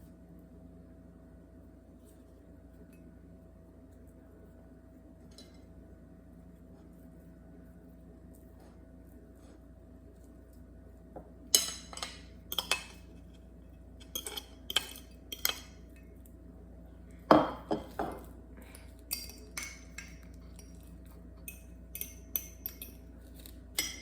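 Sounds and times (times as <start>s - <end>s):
metal utensil clinking against bowl: 11.5s - 13.1s, 14.0s - 16.1s, 19.1s - 24.0s.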